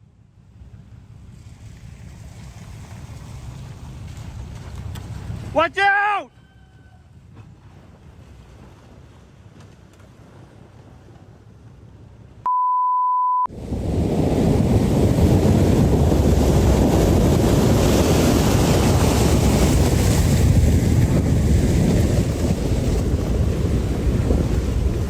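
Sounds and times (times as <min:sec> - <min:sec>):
storm wind buffeting microphone: 0:00.6 - 0:05.6, 0:13.5 - 0:25.0
steady beep: 0:12.5 - 0:13.5.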